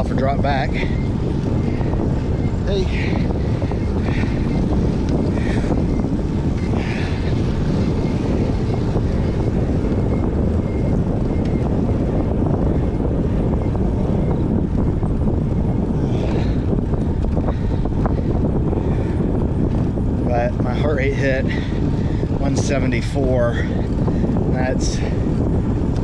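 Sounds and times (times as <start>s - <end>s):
wind noise on microphone: 0.0s - 26.0s.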